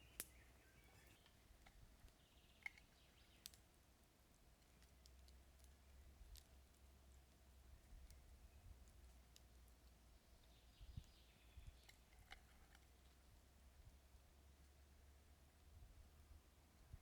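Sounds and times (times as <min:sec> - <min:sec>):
faint sharp clicks: 0:00.1 - 0:03.6.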